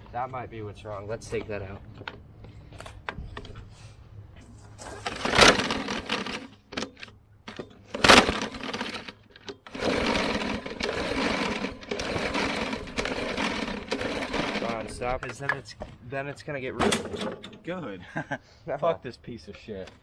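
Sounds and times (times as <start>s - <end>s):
recoil starter pulls: 4.8s - 15.6s
rough mechanical rattling: 4.8s - 15.6s.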